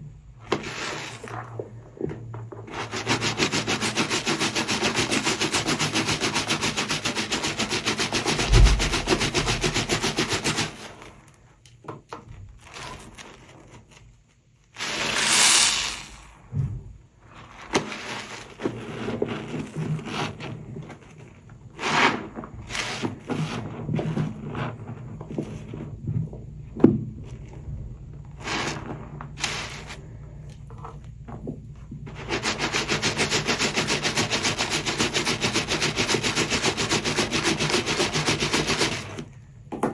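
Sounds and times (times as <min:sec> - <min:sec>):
short rushing sound: 0:08.4 - 0:09.6, 0:14.8 - 0:16.3.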